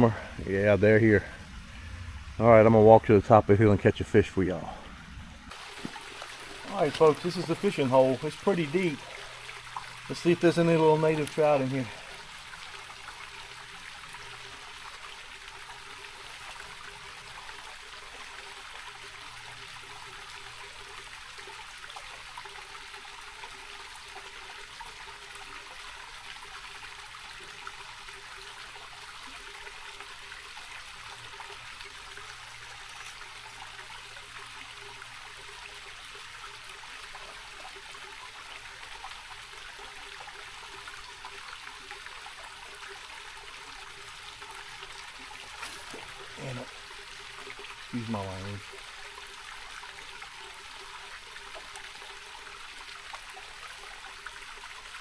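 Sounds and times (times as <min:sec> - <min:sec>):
creek rushing over rocks: 0:05.5 - 0:13.5, 0:42.0 - 0:53.3.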